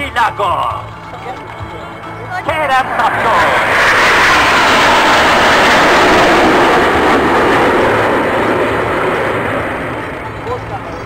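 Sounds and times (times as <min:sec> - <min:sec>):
jet fighters roaring past: 0:01.4 - 0:11.0.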